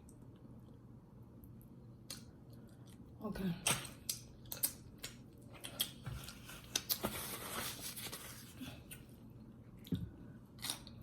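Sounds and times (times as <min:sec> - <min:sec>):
person chewing food: 0:03.8 - 0:07.1.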